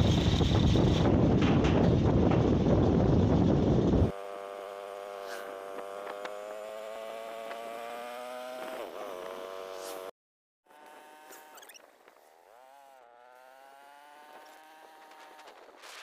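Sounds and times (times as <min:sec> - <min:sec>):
wind on microphone: 0:00.0 - 0:04.1.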